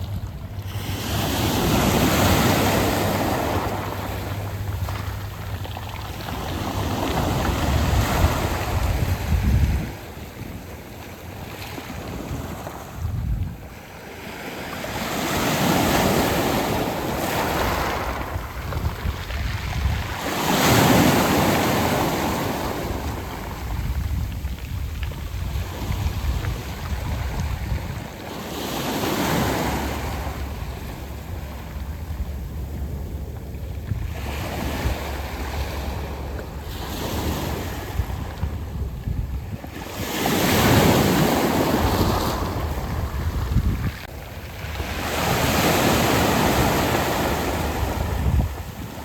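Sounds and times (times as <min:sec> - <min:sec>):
waves breaking on pebble beach: 0:00.0 - 0:31.9, 0:34.1 - 0:49.0
wind rumbling on microphone: 0:00.0 - 0:49.0.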